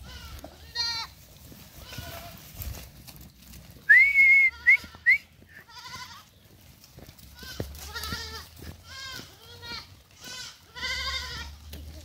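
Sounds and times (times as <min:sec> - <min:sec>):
goats bleating: 0:00.0 - 0:02.6, 0:04.4 - 0:06.4, 0:07.3 - 0:12.0
sharp whistle: 0:03.9 - 0:05.3
short rising whistles: 0:03.9 - 0:05.3.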